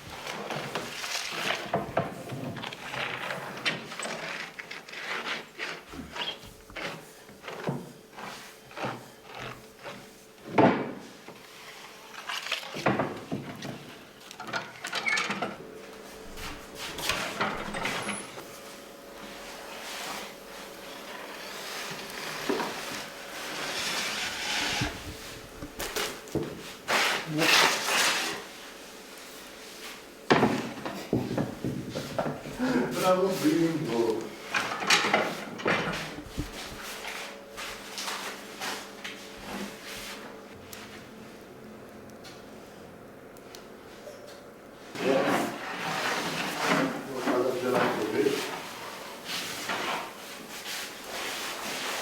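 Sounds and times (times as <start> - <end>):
clatter and scraping of trays: 19.3 - 28.5, 30.3 - 39.7.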